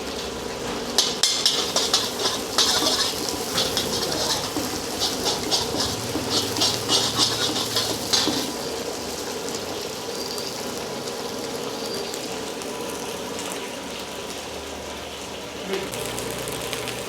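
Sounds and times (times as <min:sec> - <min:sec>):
food sizzling in a wok: 0:00.0 - 0:17.0
metal ladle scraping a wok: 0:01.0 - 0:08.7.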